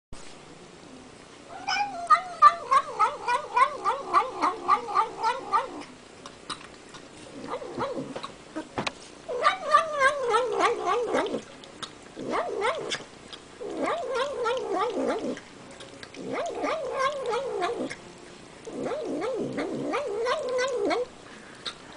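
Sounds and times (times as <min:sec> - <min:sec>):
cat warbling murmur while eating: 0:01.4 - 0:21.9
cat chewing clicks: 0:10.1 - 0:18.0.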